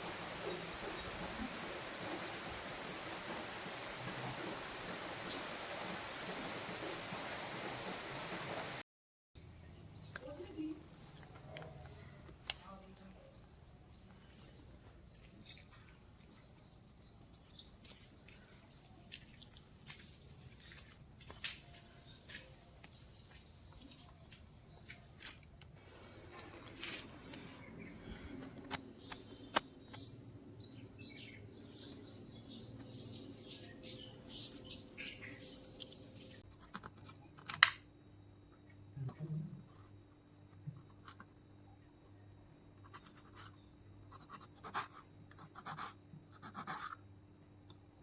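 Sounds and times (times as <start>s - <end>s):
bird chirps: 9.4s - 36.4s
insects chirping in pulses: 9.4s - 36.4s.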